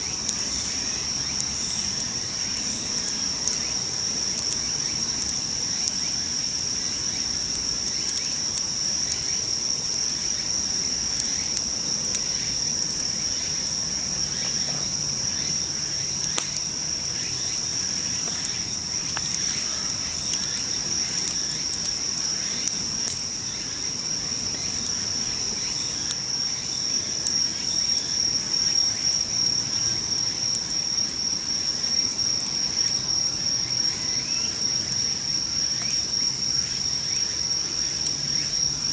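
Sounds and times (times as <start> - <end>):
campfire crackling: 0.0 - 38.9
insects trilling: 0.0 - 38.9.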